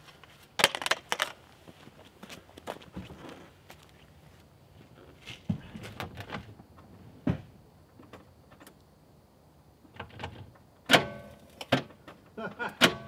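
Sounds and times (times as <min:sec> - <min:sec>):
sharp clunk with ringing tone: 0:10.9 - 0:11.8.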